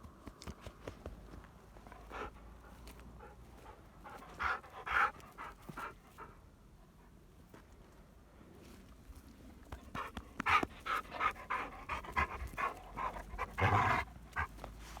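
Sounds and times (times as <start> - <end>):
dog panting: 1.8 - 7.2, 9.9 - 15.0.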